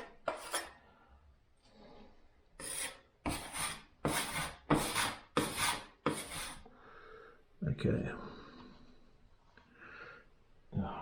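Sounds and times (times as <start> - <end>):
plastering knife scraping plaster: 0.0 - 0.8, 1.7 - 6.7.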